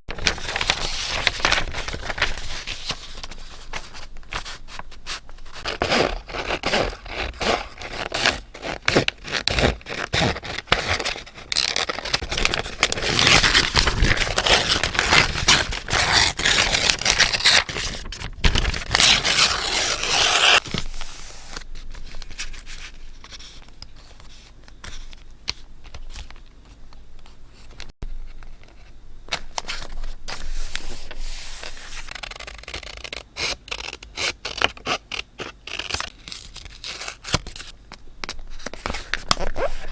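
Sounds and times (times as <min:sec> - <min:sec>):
continuous paper scrape: 0:00.1 - 0:25.2, 0:29.6 - 0:36.8
paper crackling and rustling: 0:00.1 - 0:26.6.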